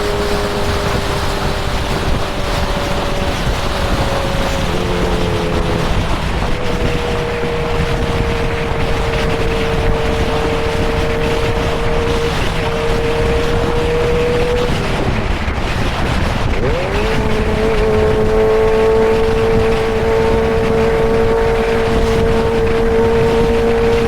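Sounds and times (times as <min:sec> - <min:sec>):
motorcycle engine cruising: 0:00.0 - 0:24.0
wind rushing over microphone: 0:00.0 - 0:24.0.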